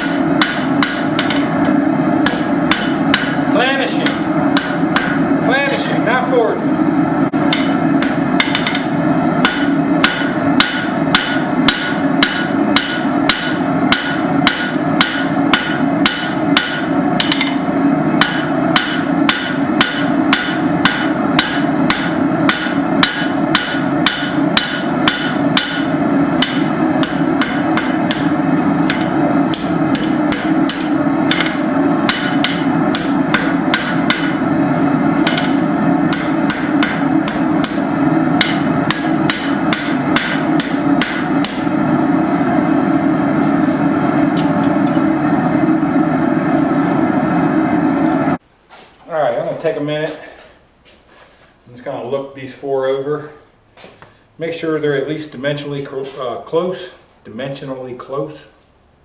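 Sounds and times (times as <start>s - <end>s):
hammer ringing on anvil: 0.0s - 1.5s, 2.3s - 3.4s, 7.5s - 17.6s, 18.2s - 28.3s, 28.9s - 34.4s, 35.2s - 37.8s, 38.4s - 41.6s
low hum: 0.0s - 48.4s.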